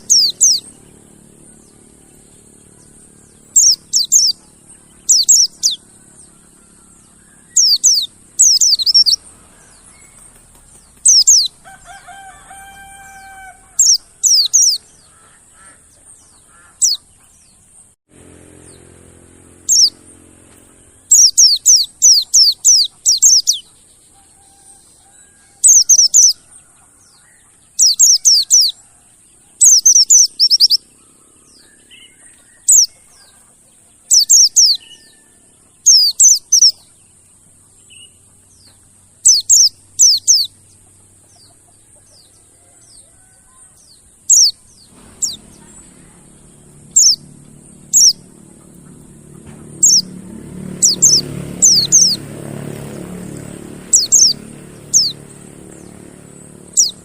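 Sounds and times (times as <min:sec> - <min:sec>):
low hum: 0:00.0 - 0:11.9, 0:13.1 - 0:24.1, 0:44.2 - 0:57.0
bird high chirps: 0:00.0 - 0:17.8, 0:18.6 - 0:57.0.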